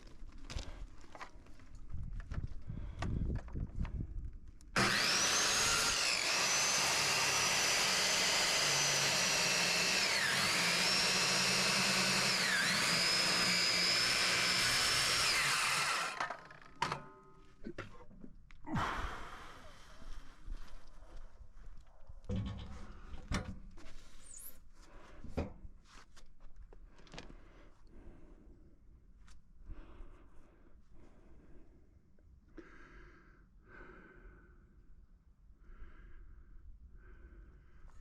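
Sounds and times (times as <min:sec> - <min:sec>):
electric power tool whining: 0:04.8 - 0:17.0.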